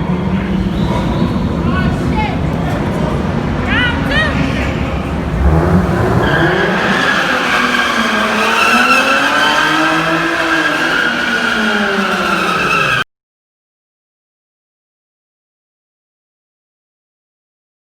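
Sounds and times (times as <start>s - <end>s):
engine revving: 0.0s - 13.0s
car tires squealing: 0.2s - 13.0s.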